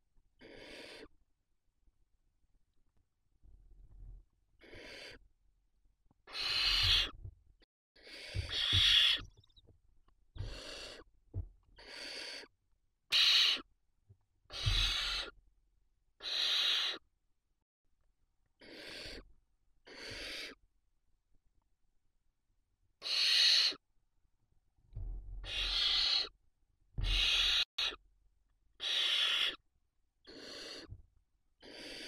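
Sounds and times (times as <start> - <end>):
owl chicks hissing calls: 0.4 - 1.1, 4.6 - 5.2, 6.3 - 7.2, 8.0 - 9.4, 10.4 - 11.1, 11.8 - 12.5, 13.1 - 13.7, 14.5 - 15.4, 16.2 - 17.1, 18.6 - 20.6, 23.0 - 23.8, 25.4 - 26.4, 27.0 - 28.0, 28.8 - 29.6, 30.2 - 31.0, 31.6 - 32.0.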